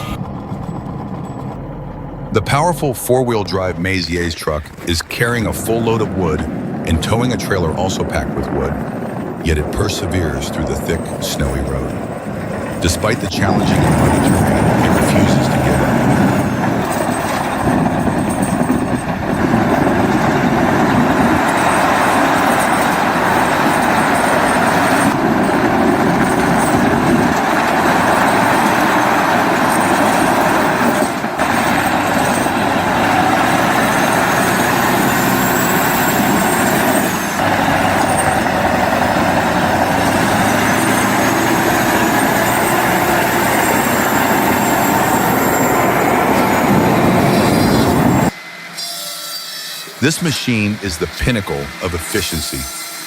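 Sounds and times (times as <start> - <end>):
truck engine labouring: 0.0 - 48.6, 50.0 - 52.9
thin high whine: 40.0 - 53.0.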